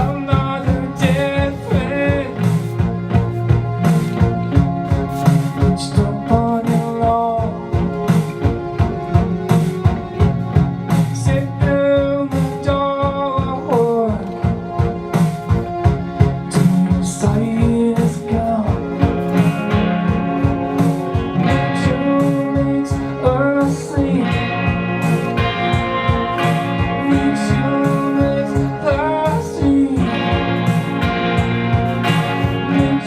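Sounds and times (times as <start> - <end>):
man singing: 0.0 - 2.9, 5.6 - 8.0, 11.0 - 14.8, 16.4 - 19.8, 21.4 - 31.0, 32.2 - 33.0
instrumental accompaniment with beat: 0.0 - 33.0.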